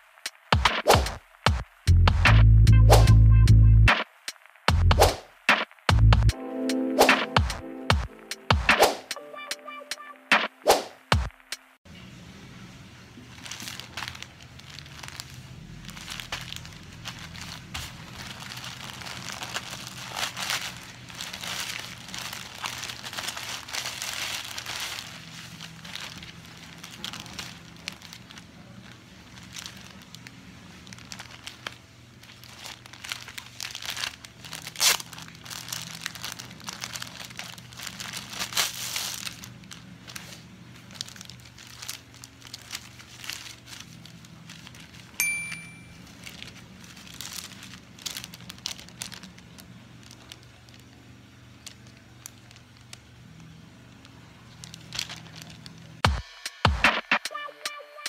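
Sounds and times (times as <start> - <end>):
low steady hum: 11.9 - 56.0
plastic wrapping crinkling: 12.8 - 56.1.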